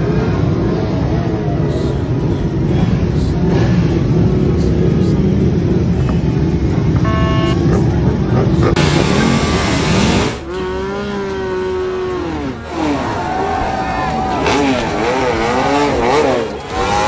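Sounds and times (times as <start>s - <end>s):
vehicle engines running: 0.0s - 17.0s
pitched tone: 6.8s - 8.1s.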